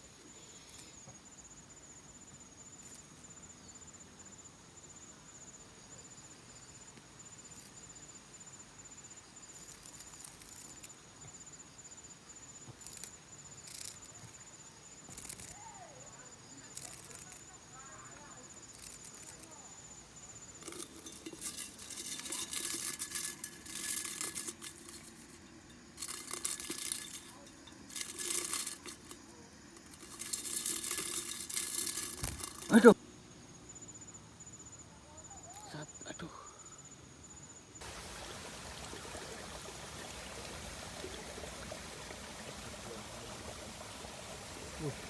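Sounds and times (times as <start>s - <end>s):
rustling and crinkling: 16.6s - 33.0s.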